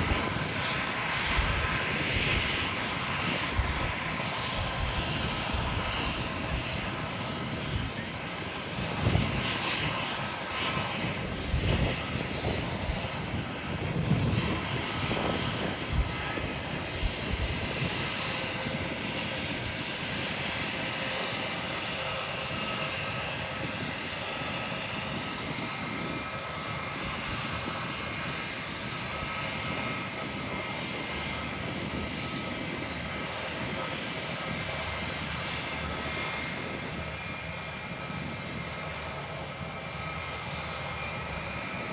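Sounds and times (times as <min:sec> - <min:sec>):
low rumbling surges: 0:00.0 - 0:18.8
jet engine rushing: 0:00.0 - 0:41.9.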